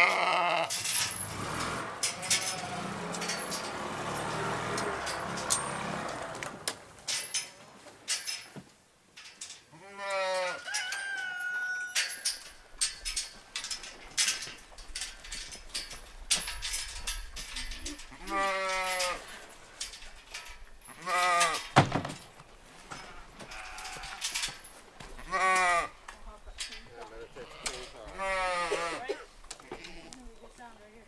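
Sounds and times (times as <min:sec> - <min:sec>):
sheep bleating: 0:00.0 - 0:00.7, 0:09.7 - 0:10.6, 0:18.1 - 0:19.2, 0:21.0 - 0:21.6, 0:23.0 - 0:24.2, 0:25.2 - 0:26.0, 0:27.4 - 0:30.2.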